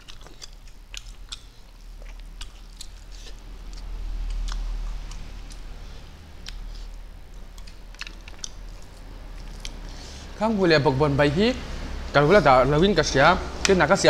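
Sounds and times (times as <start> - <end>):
people chewing and lip-smacking: 0.0 - 10.3
low steady hum: 0.0 - 14.0.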